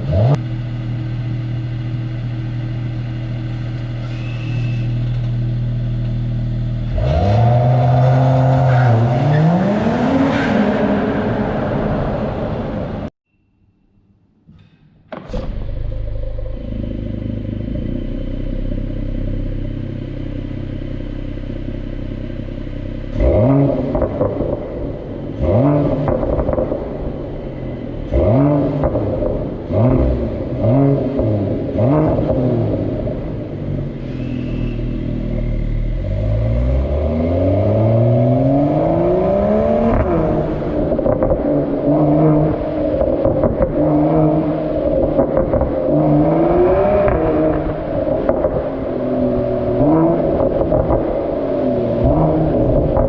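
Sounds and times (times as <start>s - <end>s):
engine revving: 0.0s - 0.8s, 6.8s - 13.0s, 23.0s - 53.0s
car engine starting and idling: 0.0s - 13.1s, 15.0s - 53.0s.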